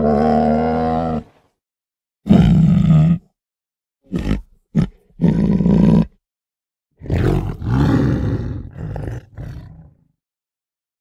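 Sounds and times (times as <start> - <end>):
tiger roaring: 0.0 - 1.4, 2.3 - 3.3, 4.1 - 6.2, 7.0 - 10.0.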